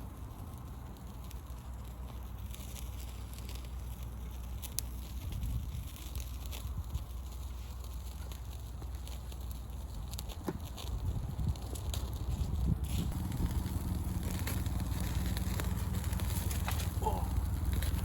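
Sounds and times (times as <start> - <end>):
wood fire crackling: 0.0 - 18.0
low rumble: 11.0 - 18.0.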